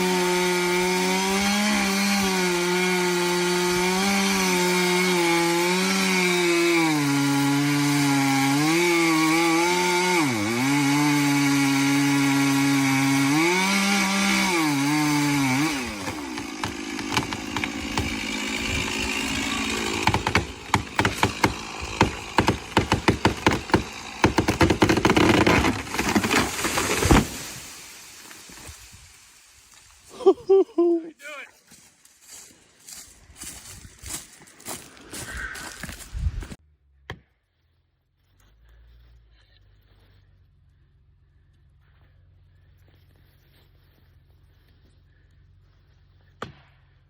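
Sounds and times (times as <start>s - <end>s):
chainsaw cutting wood: 0.0s - 29.1s
wood crackling and snapping: 12.8s - 30.1s.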